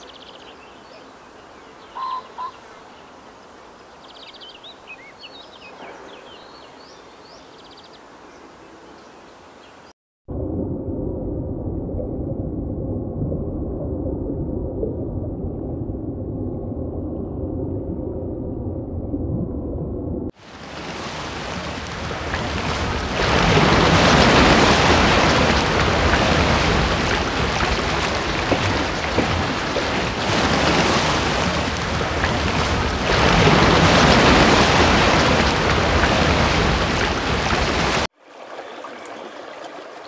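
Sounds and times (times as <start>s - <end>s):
ocean waves surging: 20.4s - 38.1s.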